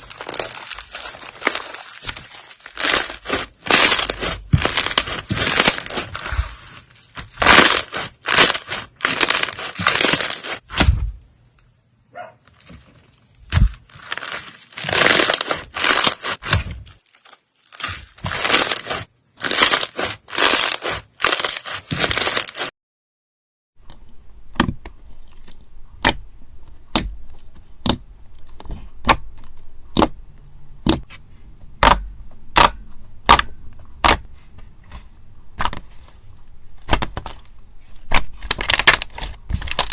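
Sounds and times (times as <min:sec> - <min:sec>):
slime popping: 0:00.0 - 0:06.5, 0:07.2 - 0:10.9, 0:13.5 - 0:16.7, 0:17.8 - 0:22.6
crunchy slime squeezes: 0:00.0 - 0:10.9, 0:13.4 - 0:22.7, 0:38.1 - 0:39.9.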